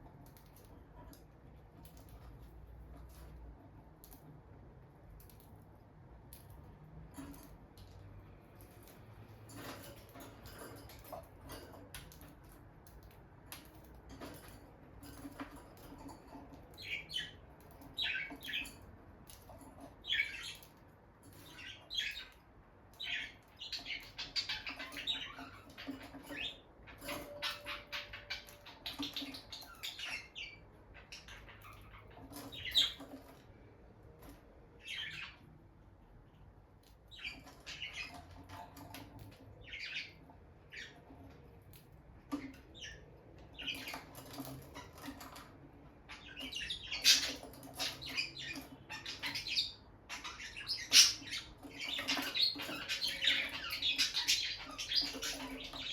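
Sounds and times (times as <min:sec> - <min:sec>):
birds clicking and rustling: 0:00.0 - 0:55.9
lovebirds chirping: 0:15.2 - 0:33.7, 0:34.4 - 0:35.6, 0:36.2 - 0:55.9.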